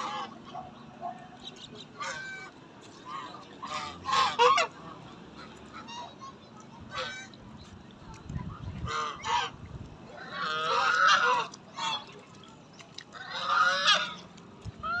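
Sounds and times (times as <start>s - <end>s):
ducks quacking: 0.0s - 7.7s, 8.6s - 15.0s.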